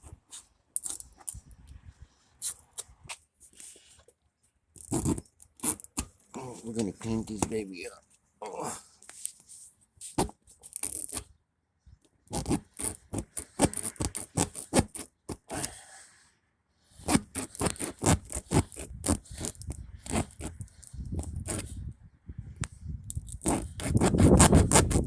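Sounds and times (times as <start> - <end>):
rasp tool scraping tire: 4.8 - 6.2, 12.3 - 15.8, 16.9 - 21.8, 23.1 - 25.0.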